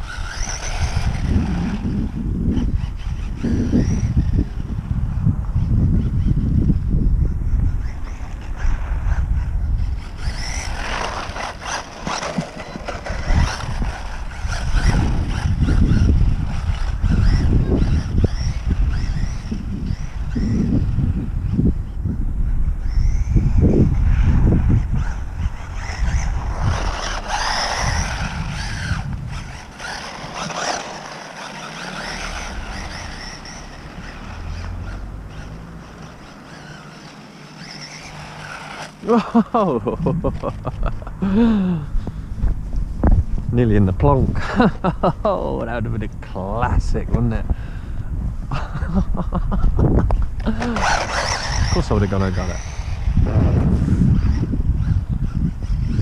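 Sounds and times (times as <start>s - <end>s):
electric motor whining: 0.0s - 44.9s, 49.1s - 56.0s
wind buffeting microphone: 0.0s - 56.0s
low rumble: 39.7s - 51.8s.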